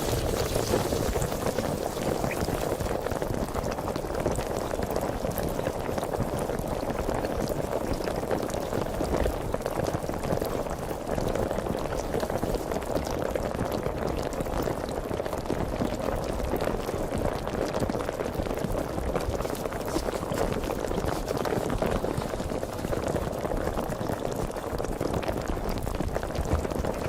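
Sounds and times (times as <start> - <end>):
sparkling water fizzing: 0.0 - 3.4.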